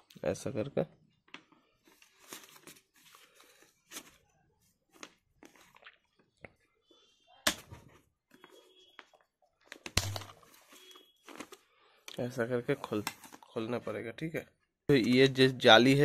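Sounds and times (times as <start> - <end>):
sharp plastic snap: 9.8 - 10.4.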